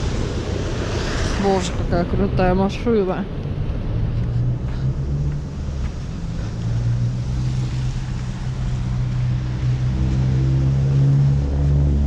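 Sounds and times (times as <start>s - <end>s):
vehicle engine droning: 3.2s - 12.0s.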